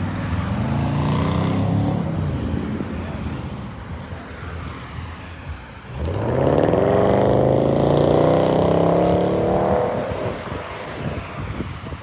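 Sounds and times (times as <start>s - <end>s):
car engine accelerating: 0.0s - 2.8s, 5.9s - 10.8s.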